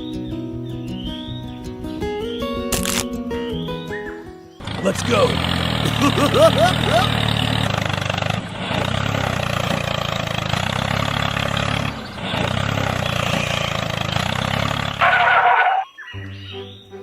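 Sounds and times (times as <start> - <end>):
tractor engine humming: 4.5 - 17.0.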